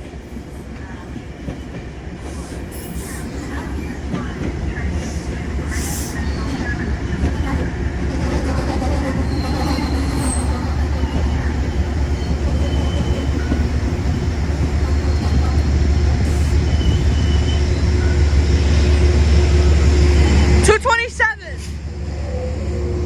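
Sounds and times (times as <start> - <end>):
train rumbling: 0.0 - 23.0
faint high squeals: 5.7 - 18.5.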